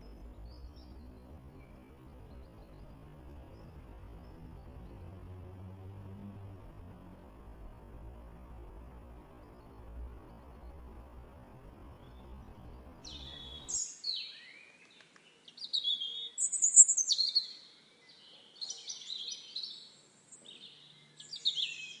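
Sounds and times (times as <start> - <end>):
low steady hum: 0.0 - 13.8
songbird singing: 0.0 - 22.0.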